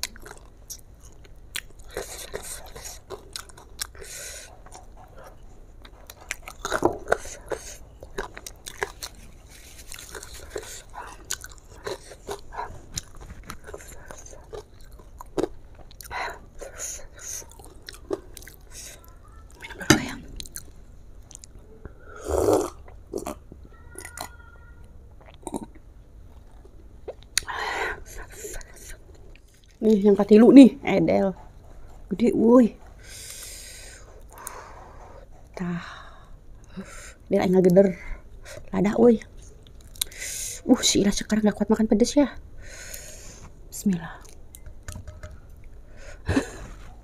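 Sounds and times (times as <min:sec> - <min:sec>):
chewing and crunching fried chicken: 0:00.0 - 0:21.6, 0:39.3 - 0:40.2.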